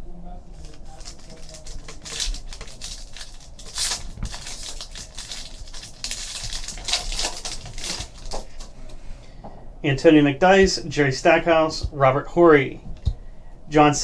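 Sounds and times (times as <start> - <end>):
foil wrappers crinkling: 0.4 - 9.0.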